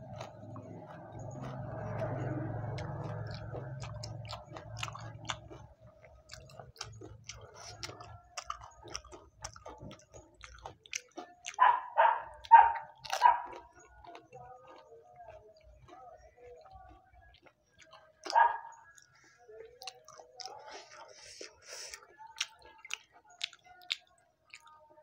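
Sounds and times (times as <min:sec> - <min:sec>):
person chewing crunchy food: 0:00.0 - 0:24.9.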